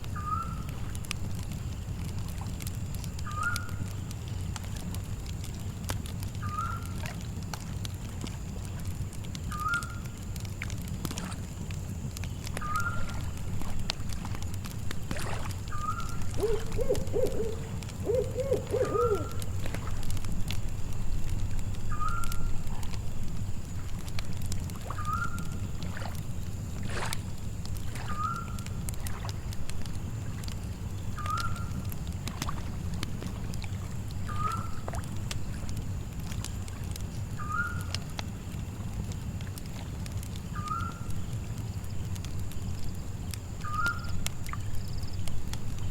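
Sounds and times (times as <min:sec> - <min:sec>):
campfire crackling and popping: 0:00.0 - 0:45.9
steady low rumble: 0:13.2 - 0:24.8
owl hoots: 0:15.8 - 0:19.4.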